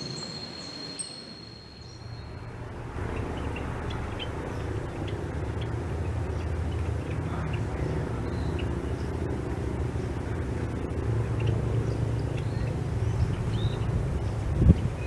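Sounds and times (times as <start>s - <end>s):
faint high chirps: 0.0s - 2.6s
low humming rumble: 0.0s - 15.0s.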